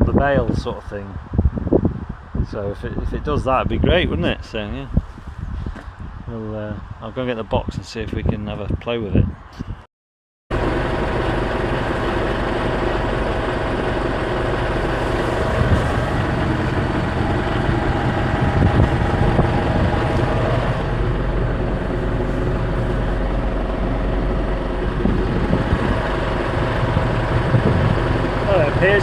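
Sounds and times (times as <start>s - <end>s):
tractor engine running: 10.5s - 29.0s.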